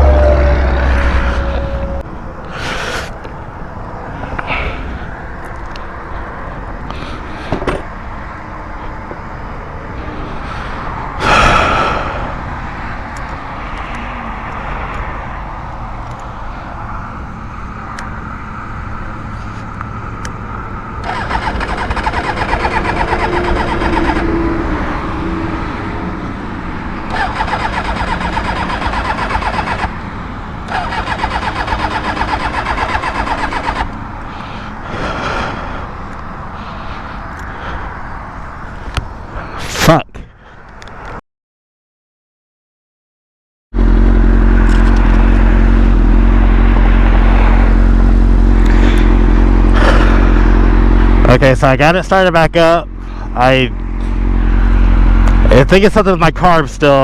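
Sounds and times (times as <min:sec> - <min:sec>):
traffic background: 0:00.0 - 0:41.2, 0:43.7 - 0:57.0
electric starter cranking engine: 0:21.0 - 0:24.4, 0:27.0 - 0:37.7, 0:43.9 - 0:51.2.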